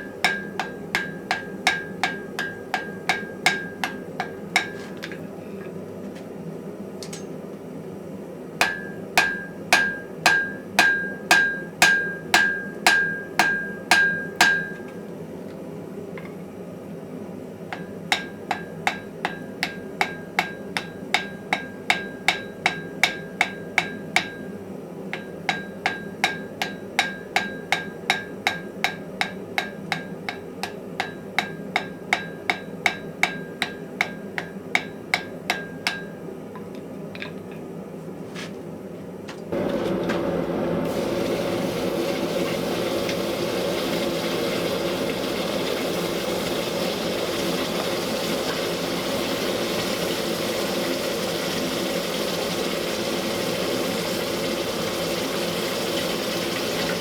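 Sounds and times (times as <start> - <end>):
hammer blows on anvil: 0.0 - 5.1, 8.6 - 15.0
loud machine noise: 39.6 - 48.9.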